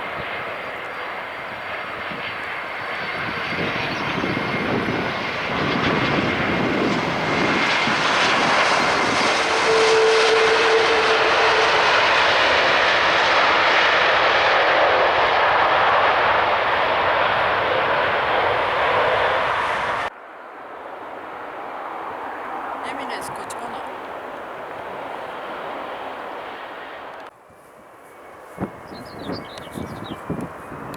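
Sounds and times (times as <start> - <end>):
airliner engines passing: 0.0 - 30.9.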